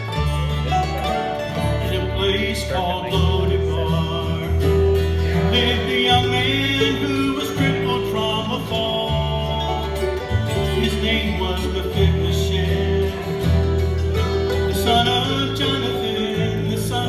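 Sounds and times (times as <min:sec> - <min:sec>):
bluegrass band playing: 0:00.0 - 0:17.0
fiddle holding long note: 0:09.1 - 0:16.7.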